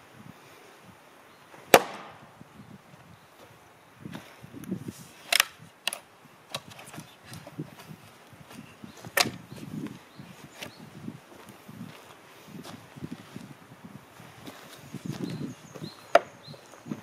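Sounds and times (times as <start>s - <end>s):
axe chopping into a log: 1.7s - 2.2s.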